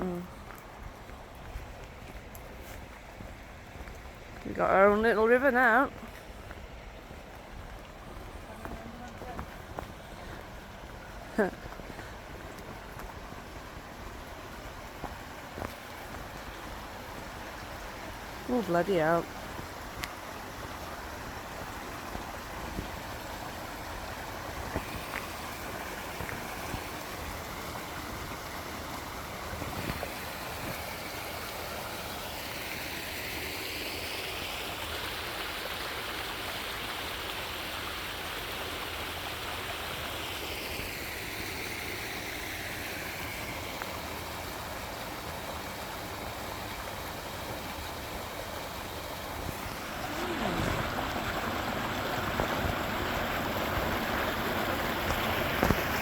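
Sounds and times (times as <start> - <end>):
floodwater rushing: 0.0 - 56.0.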